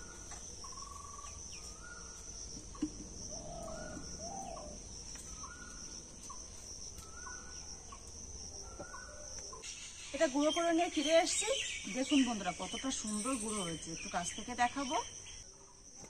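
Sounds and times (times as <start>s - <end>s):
high drone of insects: 0.0s - 16.0s
lower bird call: 3.3s - 5.8s.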